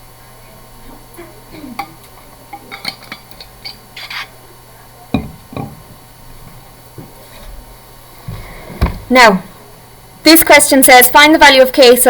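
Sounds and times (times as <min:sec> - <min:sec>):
steady low hum: 0:00.0 - 0:12.0
dull knocks: 0:08.3 - 0:09.1.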